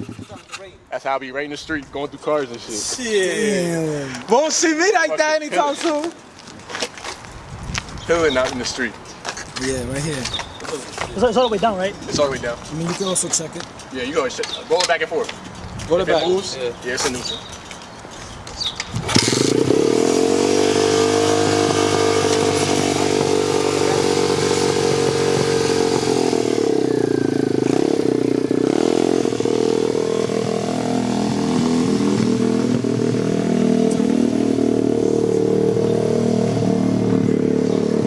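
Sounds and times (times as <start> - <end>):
dirt bike engine running: 0.0 - 0.6, 19.0 - 38.0.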